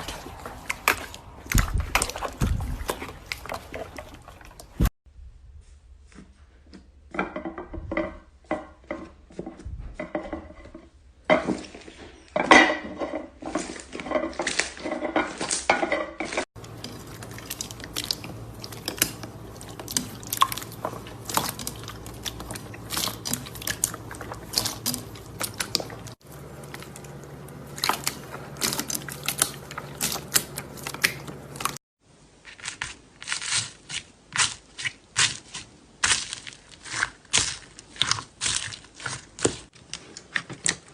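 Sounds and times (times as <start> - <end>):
slime crackling and popping: 32.6 - 39.8.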